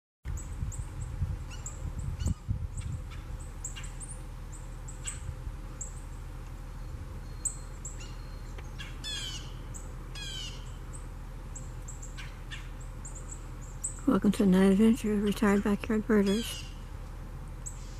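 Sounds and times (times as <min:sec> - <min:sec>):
harsh falling bird calls: 0:00.3 - 0:14.1, 0:15.3 - 0:17.9
birds chirping: 0:00.3 - 0:17.9.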